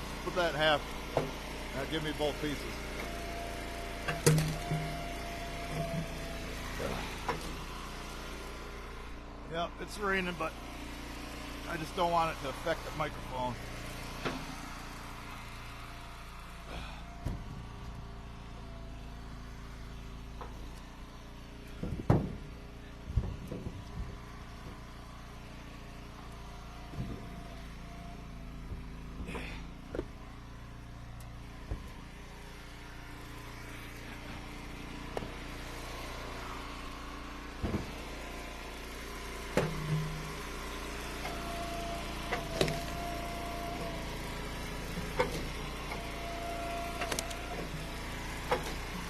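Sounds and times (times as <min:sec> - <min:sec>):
wood splitter engine running: 0:00.0 - 0:49.0
firewood knocks and thumps: 0:04.0 - 0:05.1, 0:21.7 - 0:24.8, 0:26.9 - 0:27.4, 0:28.6 - 0:30.2, 0:31.6 - 0:32.0, 0:37.6 - 0:38.1.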